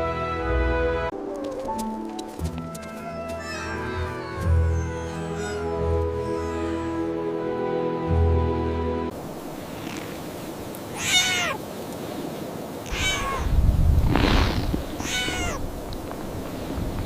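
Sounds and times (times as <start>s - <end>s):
kitten meowing: 2.9s - 7.0s, 10.9s - 11.6s, 12.9s - 13.5s, 15.0s - 15.6s.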